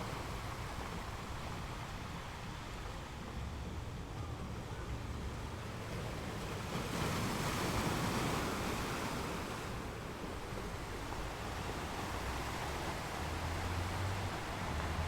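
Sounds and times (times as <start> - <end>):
sea waves washing: 6.6 - 15.0.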